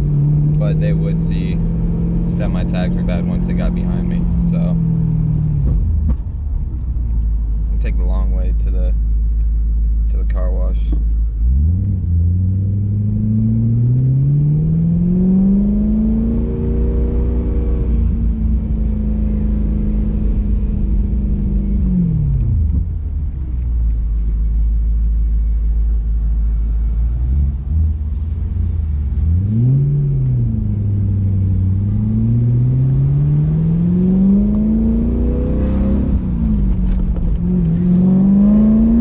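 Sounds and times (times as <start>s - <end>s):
car engine and exhaust revving: 0.0s - 39.0s.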